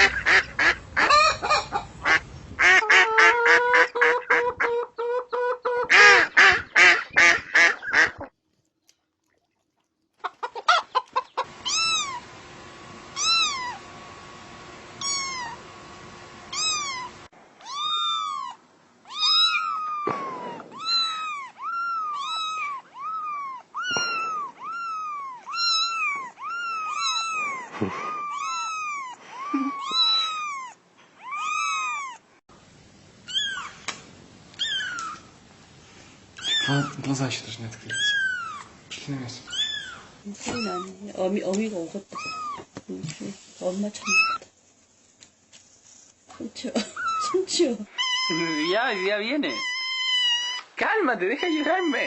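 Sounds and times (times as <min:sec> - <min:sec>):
cat mewing: 0:11.5 - 0:12.3, 0:13.1 - 0:13.8, 0:15.0 - 0:15.7, 0:16.5 - 0:32.3, 0:33.3 - 0:33.9, 0:34.6 - 0:35.3, 0:36.4 - 0:37.0, 0:37.9 - 0:38.7, 0:39.5 - 0:41.0, 0:42.2 - 0:42.7, 0:46.8 - 0:50.8, 0:51.4 - 0:52.0.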